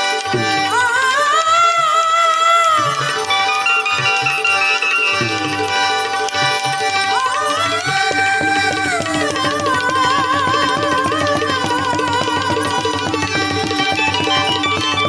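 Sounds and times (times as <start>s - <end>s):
tabla playing fast rhythm: 0.0s - 15.0s
wavering melody line: 3.3s - 15.0s.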